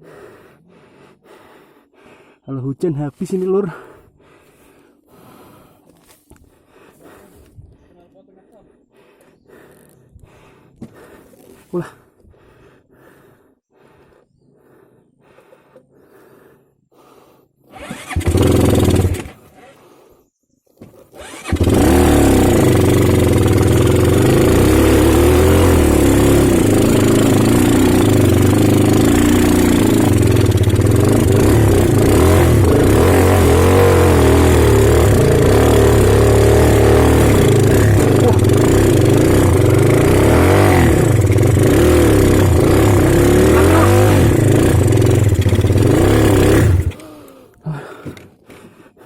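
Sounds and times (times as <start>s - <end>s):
motorcycle engine starting and revving: 17.7s - 19.8s, 21.1s - 47.4s.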